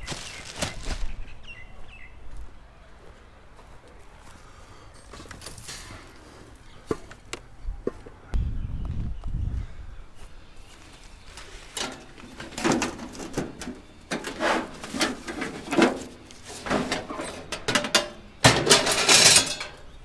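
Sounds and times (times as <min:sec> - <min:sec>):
scrap metal knocks and rattles: 0:10.9 - 0:20.0
loud scrap clatter: 0:11.4 - 0:20.0.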